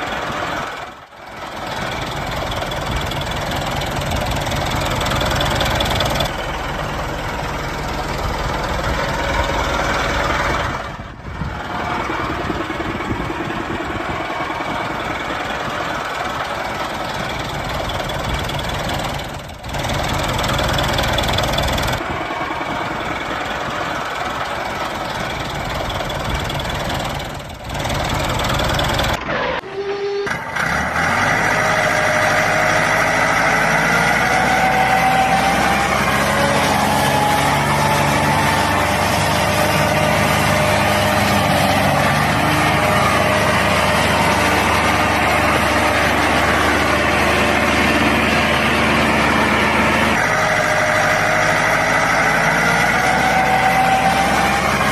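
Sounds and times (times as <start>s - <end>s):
small engine running: 30.4s - 54.9s.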